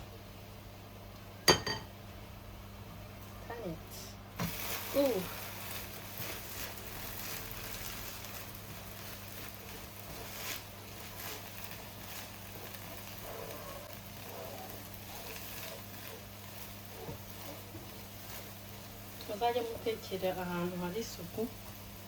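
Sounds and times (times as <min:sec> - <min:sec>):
pancake sizzling in a pan: 0:03.2 - 0:22.0.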